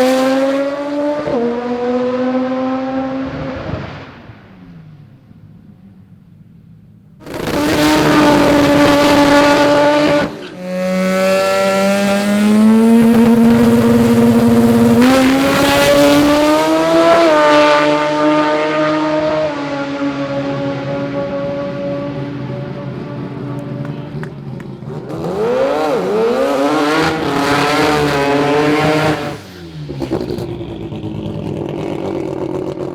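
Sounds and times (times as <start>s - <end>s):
drag car engine revving: 7.2s - 32.9s.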